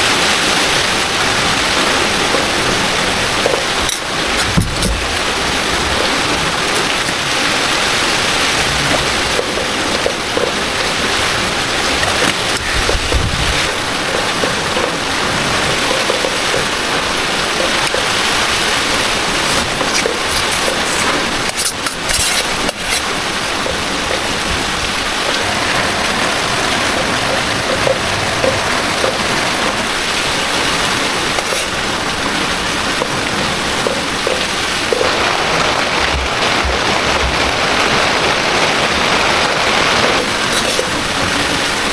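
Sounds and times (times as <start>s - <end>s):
floodwater rushing: 0.0s - 41.9s
heavy rain falling: 0.0s - 41.9s.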